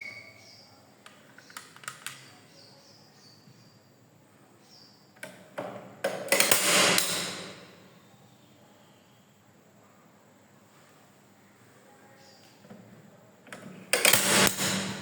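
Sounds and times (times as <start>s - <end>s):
staple gun clicking and clattering: 6.1s - 7.4s.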